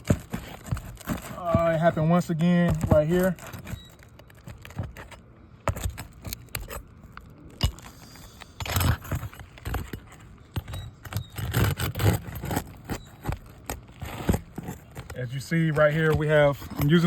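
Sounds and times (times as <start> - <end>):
metal bar scraping shingles: 7.6 - 17.0.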